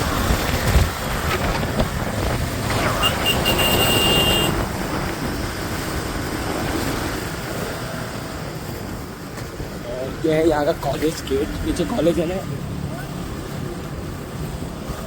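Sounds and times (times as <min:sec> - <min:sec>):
wind rush: 0:00.0 - 0:10.2
motorcycle engine and road noise: 0:00.0 - 0:15.0
high-pitched vehicle horn: 0:02.9 - 0:04.6.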